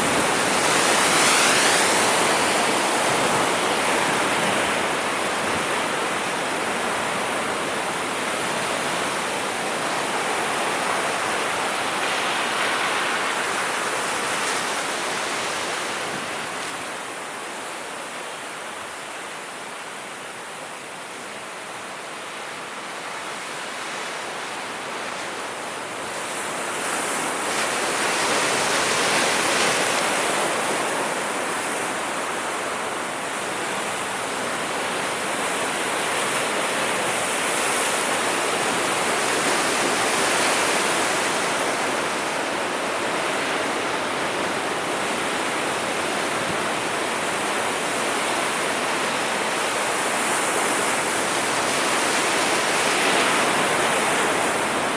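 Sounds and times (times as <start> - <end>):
sea waves breaking: 0.0 - 6.2.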